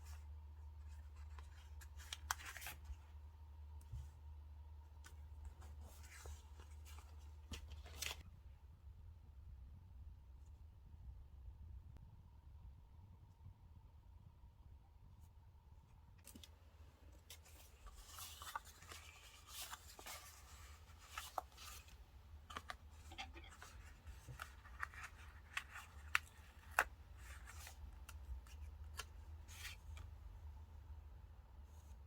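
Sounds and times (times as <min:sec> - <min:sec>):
paper rustling: 0:00.0 - 0:03.1, 0:05.0 - 0:08.2, 0:17.2 - 0:30.2.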